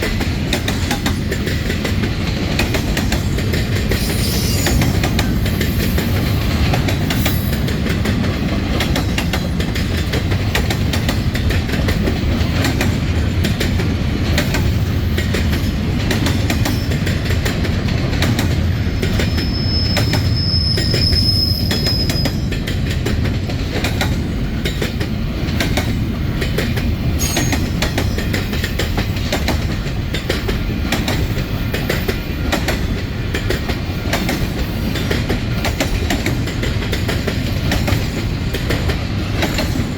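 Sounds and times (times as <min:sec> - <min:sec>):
freight train wheels rumbling: 0:00.0 - 0:39.9
high-pitched wheel squeal: 0:04.0 - 0:05.0, 0:19.0 - 0:22.5.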